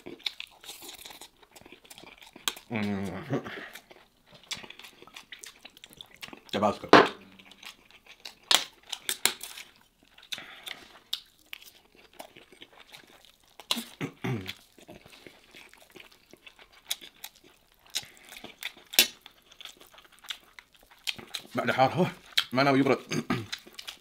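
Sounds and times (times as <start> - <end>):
man chewing food: 0.0 - 24.0
wet mouth noises: 13.6 - 15.6.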